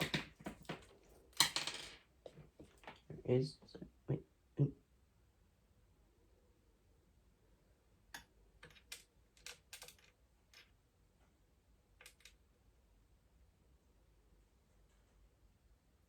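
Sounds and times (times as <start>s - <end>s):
light clicks of small parts: 12.0s - 12.4s.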